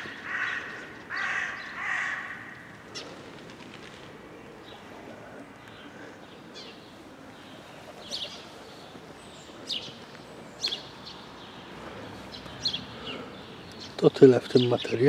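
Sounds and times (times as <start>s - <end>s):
songbird chirping: 4.3s - 15.0s.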